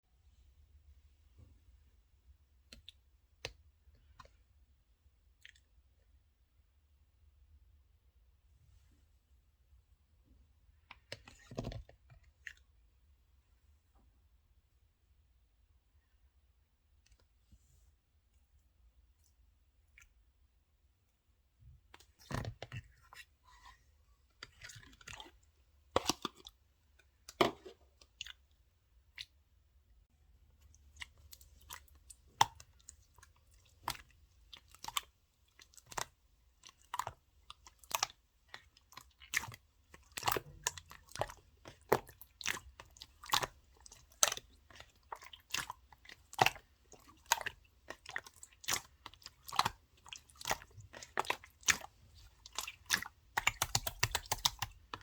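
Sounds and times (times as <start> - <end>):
slime popping and crackling: 42.8 - 55.0.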